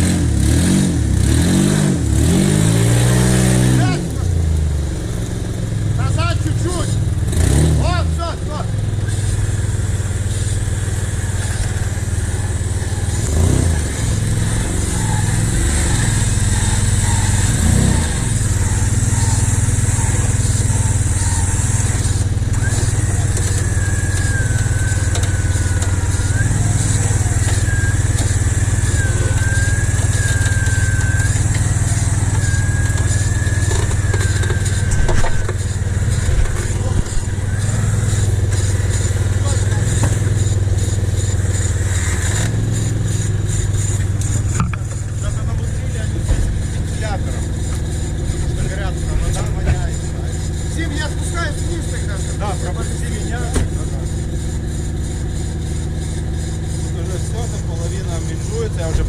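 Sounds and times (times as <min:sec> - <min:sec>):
off-road engine running: 0:00.0 - 0:59.0
wavering high-pitched tone: 0:10.4 - 0:53.3.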